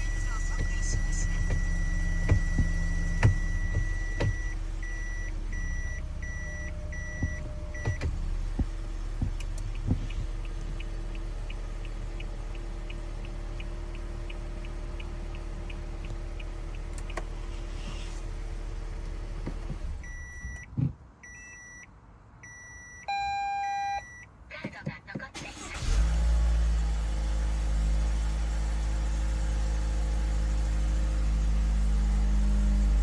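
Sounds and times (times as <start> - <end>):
reverse buzzer beeping: 0.0 - 8.2
turn-signal indicator ticking: 0.0 - 17.4
idling car hum: 0.0 - 33.0.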